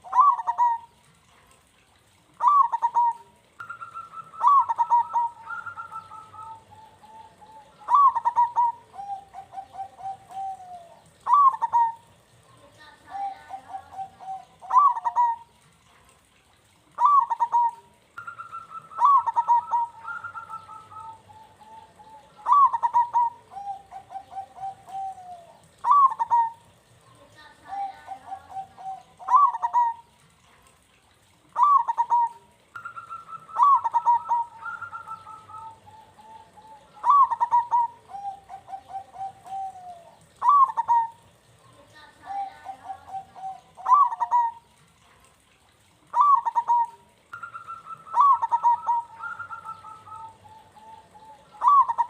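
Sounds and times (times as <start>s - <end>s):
dove cooing: 0.0s - 1.1s, 2.3s - 15.6s, 16.9s - 30.2s, 31.4s - 45.0s, 46.1s - 52.0s.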